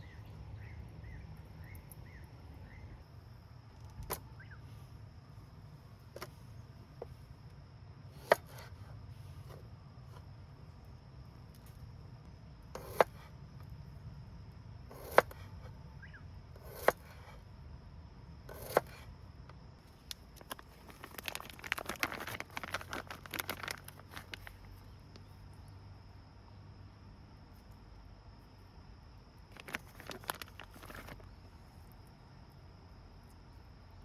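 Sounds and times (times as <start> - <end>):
dry rustling and crackling: 19.8 - 25.3, 29.4 - 31.5.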